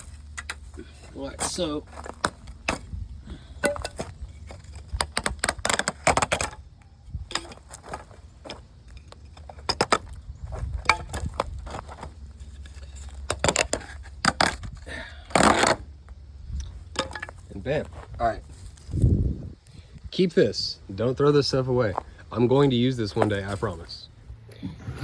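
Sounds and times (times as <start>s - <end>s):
wood being pried and ripped: 3.7s - 6.6s, 13.1s - 15.9s.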